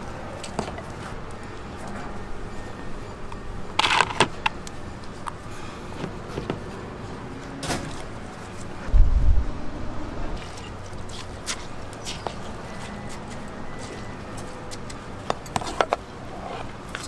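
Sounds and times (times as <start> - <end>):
objects clicking and knocking: 3.7 - 4.6
heavy low thump: 8.9 - 10.4.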